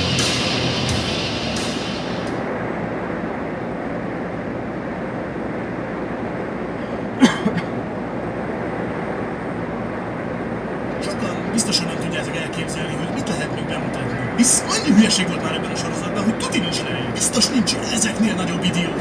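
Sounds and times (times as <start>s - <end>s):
truck road and engine noise: 0.0s - 4.1s, 5.8s - 19.0s.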